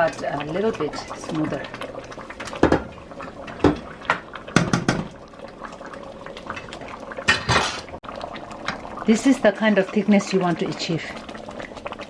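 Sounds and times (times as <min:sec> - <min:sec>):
thick soup bubbling in a pot: 0:00.0 - 0:12.0
utensil knocking against pot: 0:04.5 - 0:05.1.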